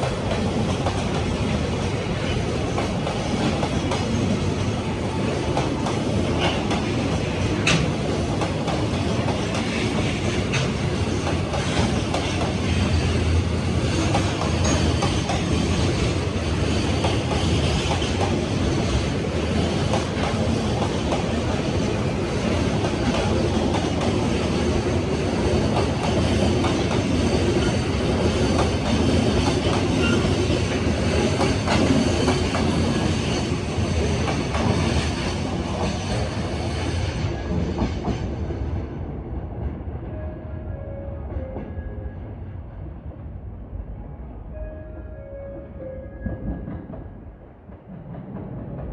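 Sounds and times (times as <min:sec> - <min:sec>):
freight train wheels clattering: 0:00.0 - 0:38.8.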